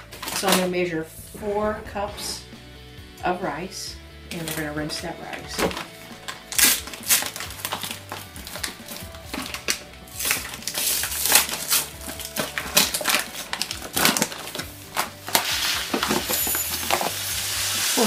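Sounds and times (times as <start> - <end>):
paper bag crinkling: 5.5 - 18.0
rice pouring into glass cup: 15.4 - 18.0.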